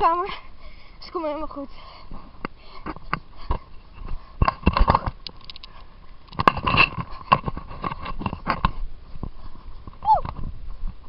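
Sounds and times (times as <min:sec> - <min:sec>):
camera handling thuds and rustles: 0:02.8 - 0:10.5.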